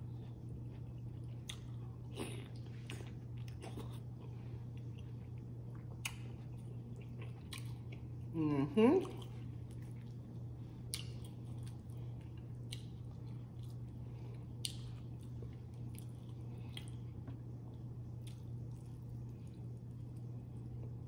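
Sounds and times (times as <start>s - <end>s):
person chewing food: 0.0s - 8.3s, 9.0s - 21.0s
steady low hum: 0.0s - 21.0s.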